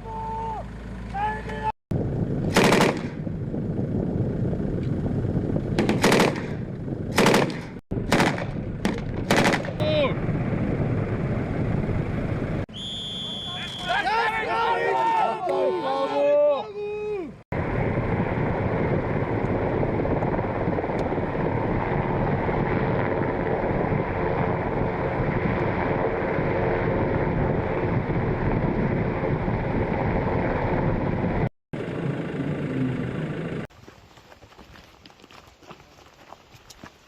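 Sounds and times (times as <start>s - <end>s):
helicopter rotor and turbine noise: 0.2s - 13.6s, 17.5s - 33.7s
wind on microphone: 1.9s - 12.6s, 17.5s - 31.5s.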